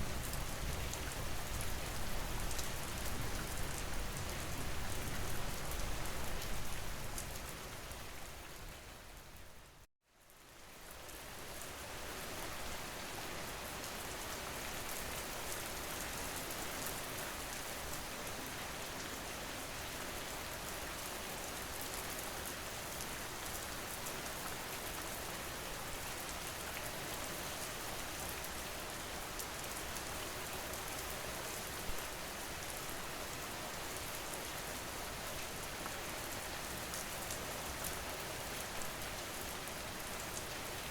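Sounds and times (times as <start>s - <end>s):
rain pattering on a surface: 0.0s - 40.9s.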